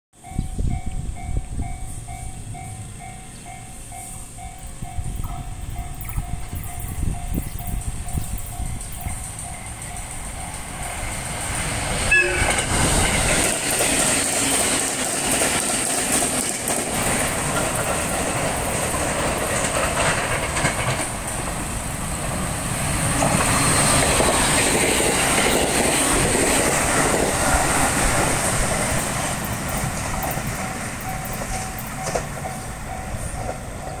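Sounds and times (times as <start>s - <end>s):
electric trains running past: 0.2s - 34.0s
wheels clattering over rail joints: 8.5s - 34.0s.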